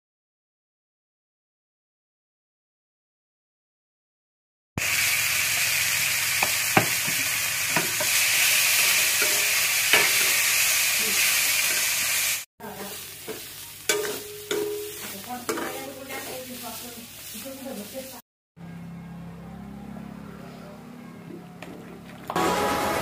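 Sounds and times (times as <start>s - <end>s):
vegetables sizzling in pan: 4.8s - 18.2s
metal ladle scraping pan: 8.8s - 10.5s, 12.8s - 16.6s.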